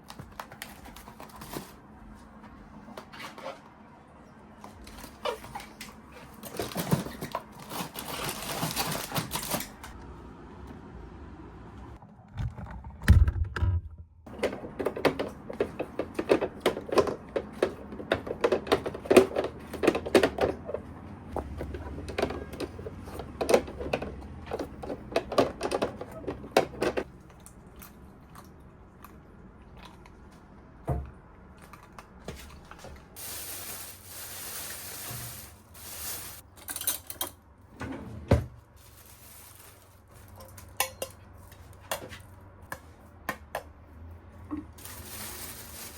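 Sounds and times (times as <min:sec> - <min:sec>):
small hard objects clattering: 0:44.8 - 0:45.9.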